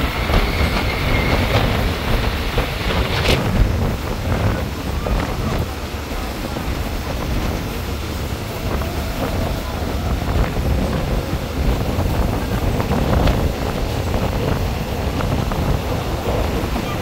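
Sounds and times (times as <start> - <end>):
passenger train rumbling: 0.0 - 17.0
wind buffeting the microphone: 0.0 - 17.0.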